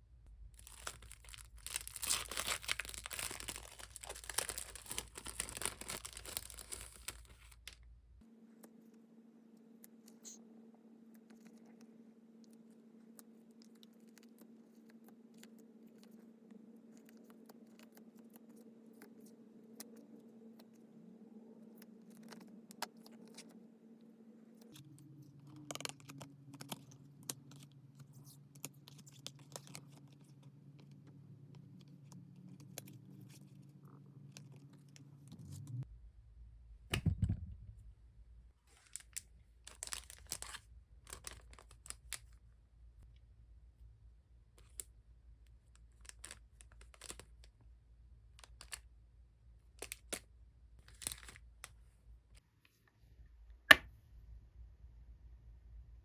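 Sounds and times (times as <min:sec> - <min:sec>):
packaging crinkling and tearing: 0:00.6 - 0:07.8, 0:38.7 - 0:42.3, 0:45.8 - 0:47.5, 0:50.8 - 0:51.5
packaging rustling and clicking: 0:00.6 - 0:07.8.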